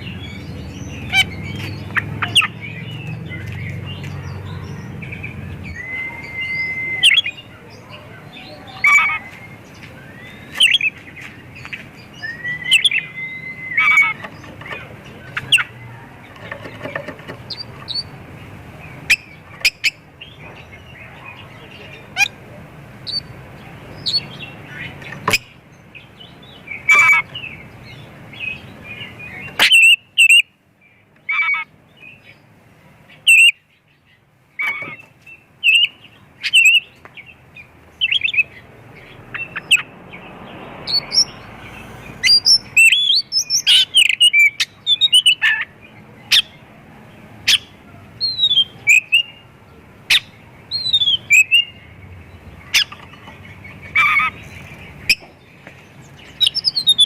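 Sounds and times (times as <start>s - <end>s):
bird singing whistles and chirps: 5.0s - 7.5s, 12.1s - 14.2s, 40.9s - 45.4s, 47.5s - 49.4s, 50.1s - 51.8s, 56.2s - 57.0s.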